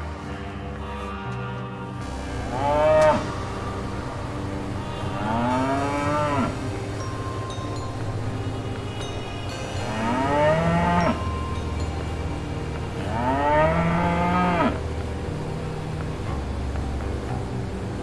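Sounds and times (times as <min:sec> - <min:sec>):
steady low hum: 0:00.0 - 0:18.0
cow mooing: 0:00.7 - 0:07.0, 0:13.0 - 0:14.9.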